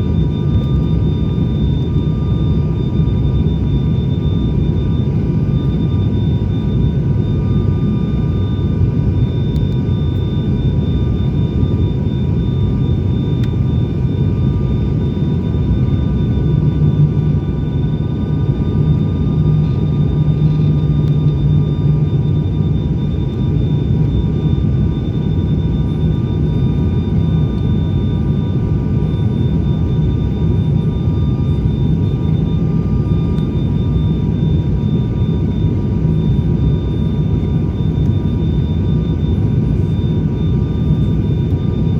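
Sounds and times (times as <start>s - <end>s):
turboprop engines droning: 0.0s - 41.9s.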